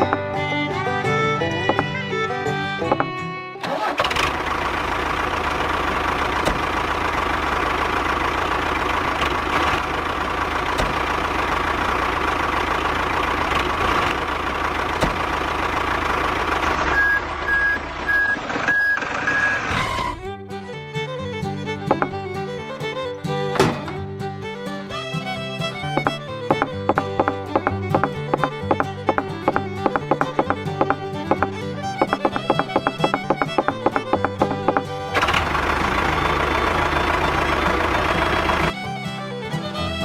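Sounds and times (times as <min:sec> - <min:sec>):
engine running: 0:00.0 - 0:40.0
short high beeps: 0:16.9 - 0:19.6.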